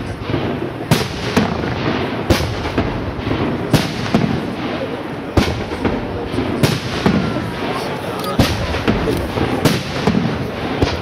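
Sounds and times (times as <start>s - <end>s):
continuous noisy rush: 0.0s - 11.0s
firework shells bursting: 0.0s - 11.0s.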